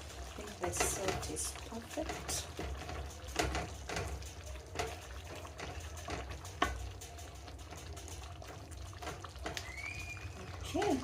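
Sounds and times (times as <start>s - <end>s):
spoon stirring stew in a pot: 0.0s - 11.0s
spoon knocking against pot: 0.7s - 6.9s.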